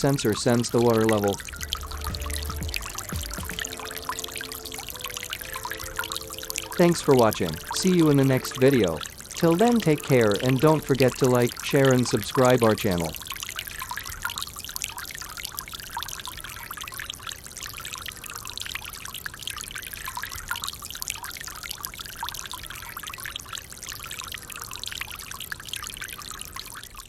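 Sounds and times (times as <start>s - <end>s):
fountain water splashing: 0.0s - 19.4s.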